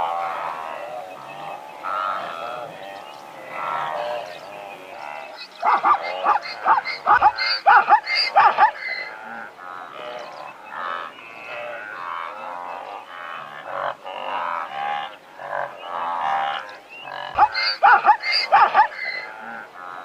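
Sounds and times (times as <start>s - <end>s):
zebra calling: 0.2s - 12.4s, 15.0s - 20.0s
zebra barking yelps: 5.3s - 9.4s, 17.1s - 19.5s.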